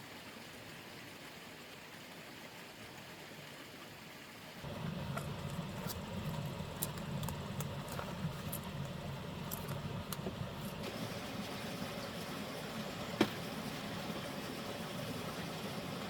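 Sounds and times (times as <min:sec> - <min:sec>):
low rumble: 0:04.6 - 0:16.0
sharp clicks and crackles: 0:05.1 - 0:10.8.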